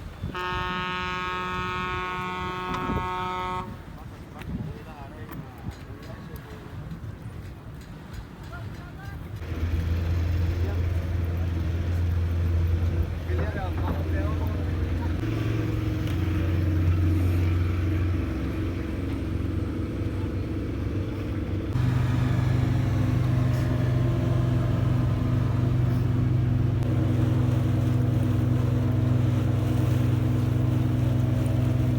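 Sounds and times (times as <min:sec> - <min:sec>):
boat engine running: 0:09.4 - 0:31.9.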